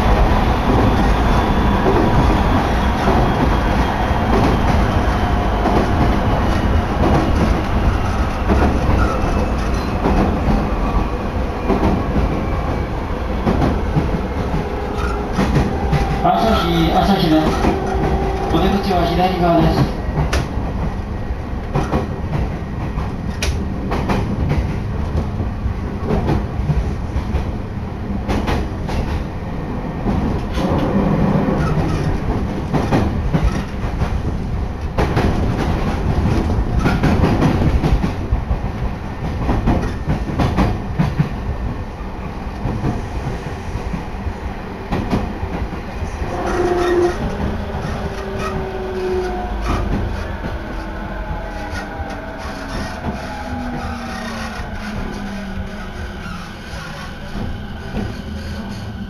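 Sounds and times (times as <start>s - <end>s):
train wheels clacking on rail joints: 2.9s - 10.6s, 13.4s - 18.9s, 21.6s - 25.4s, 28.2s - 29.3s, 30.1s - 41.4s, 44.9s - 59.0s.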